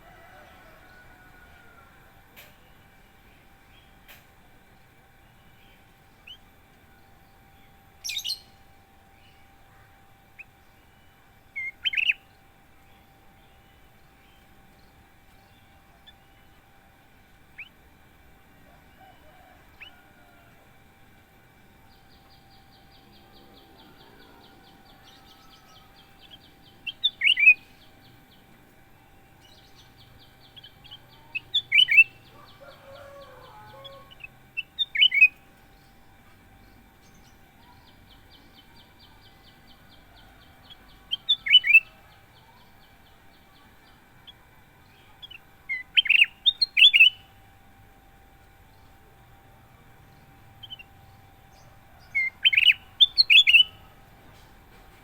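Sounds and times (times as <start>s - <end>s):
bulbul calling: 8.0s - 8.6s, 11.6s - 12.3s, 22.1s - 28.4s, 29.4s - 35.4s, 37.1s - 44.4s, 45.0s - 47.4s, 50.3s - 54.4s.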